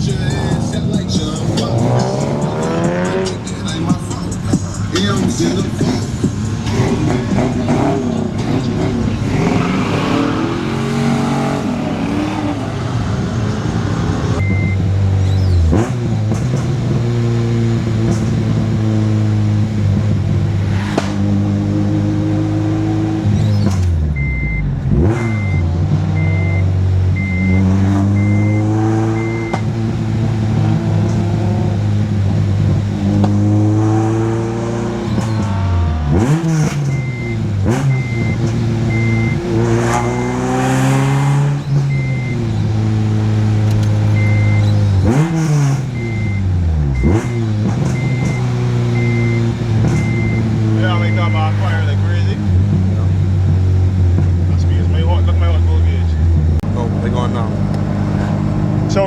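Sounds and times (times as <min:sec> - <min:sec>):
car engine accelerating through gears: 0:00.0 - 0:59.0
short electronic beep: 0:14.4 - 0:15.5, 0:24.1 - 0:29.6, 0:36.2 - 0:39.9, 0:41.4 - 0:42.5, 0:44.0 - 0:45.2, 0:45.9 - 0:51.7.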